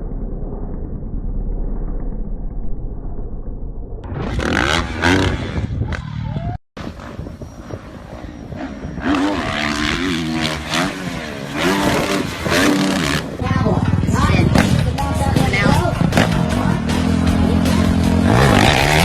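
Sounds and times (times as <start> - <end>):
dirt bike engines revving: 4.1 - 19.0.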